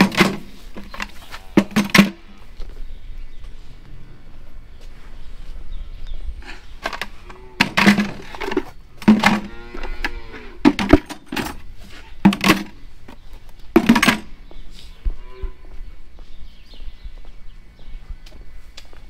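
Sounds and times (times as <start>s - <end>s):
calves bawling: 5.7s - 15.6s.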